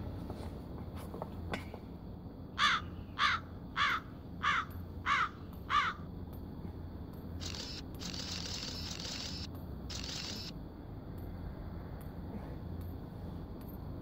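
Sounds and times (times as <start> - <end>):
steady low hum: 0.0 - 14.0
bird calling: 2.6 - 6.0.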